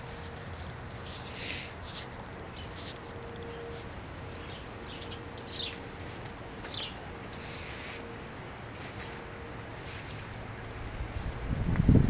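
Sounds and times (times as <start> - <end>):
small birds chirping: 0.9 - 8.2, 8.8 - 11.0.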